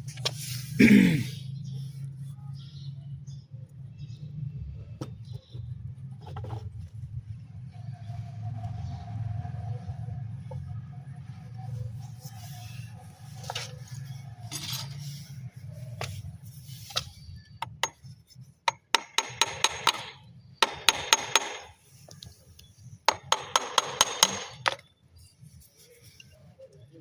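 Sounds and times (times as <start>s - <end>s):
rapid hammer-like tapping: 18.7s - 21.8s, 23.1s - 24.7s.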